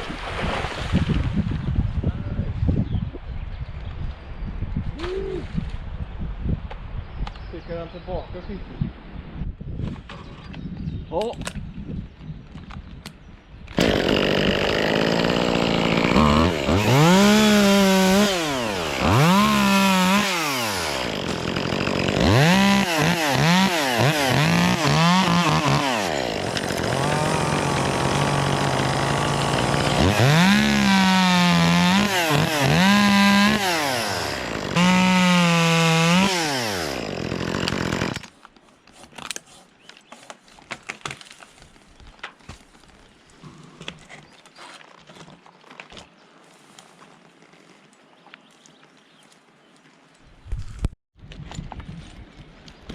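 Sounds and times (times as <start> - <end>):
chainsaw revving: 13.8 - 38.3.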